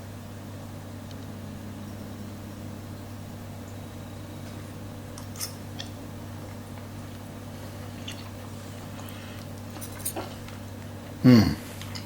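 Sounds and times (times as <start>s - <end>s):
steady low hum: 0.0s - 12.0s
person chewing food: 5.2s - 10.6s.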